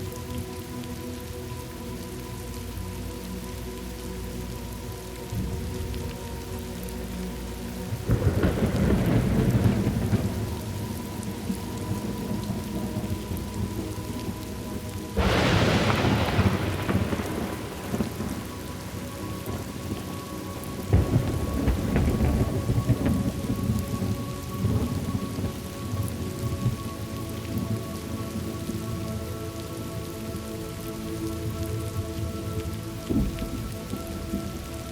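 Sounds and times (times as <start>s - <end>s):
steady rain falling: 0.0s - 34.9s
rolls of thunder: 15.2s - 18.6s.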